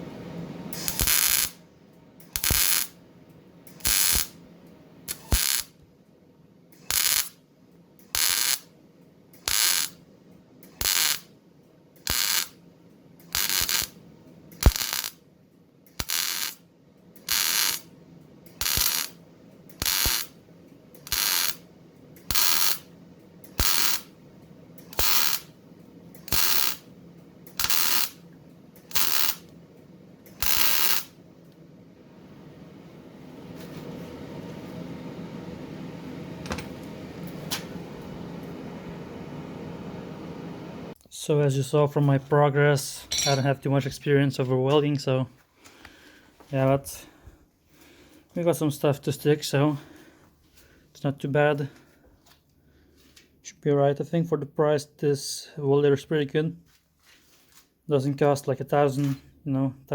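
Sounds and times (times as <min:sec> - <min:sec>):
sharp welder click: 0:00.7 - 0:01.6, 0:02.2 - 0:03.0, 0:03.7 - 0:04.4, 0:05.1 - 0:05.8, 0:06.8 - 0:07.4, 0:08.0 - 0:08.7, 0:09.4 - 0:10.0, 0:10.6 - 0:11.3, 0:12.0 - 0:12.6, 0:13.2 - 0:15.2, 0:15.9 - 0:16.6, 0:17.2 - 0:17.9, 0:18.5 - 0:20.4, 0:21.0 - 0:21.6, 0:22.2 - 0:24.1, 0:24.8 - 0:25.5, 0:26.2 - 0:26.8, 0:27.5 - 0:28.2, 0:28.8 - 0:29.5, 0:30.3 - 0:31.1
welding arc crackle: 0:00.7 - 0:01.6, 0:02.3 - 0:03.0, 0:03.8 - 0:04.4, 0:05.1 - 0:05.8, 0:06.8 - 0:07.4, 0:08.1 - 0:08.7, 0:09.4 - 0:10.0, 0:10.7 - 0:11.3, 0:12.0 - 0:12.6, 0:13.3 - 0:14.0, 0:14.6 - 0:15.2, 0:15.9 - 0:16.6, 0:17.2 - 0:17.9, 0:18.6 - 0:20.4, 0:21.0 - 0:21.6, 0:22.3 - 0:22.9, 0:23.5 - 0:24.1, 0:24.8 - 0:25.5, 0:26.2 - 0:26.9, 0:27.5 - 0:28.2, 0:28.8 - 0:29.5, 0:30.4 - 0:31.2.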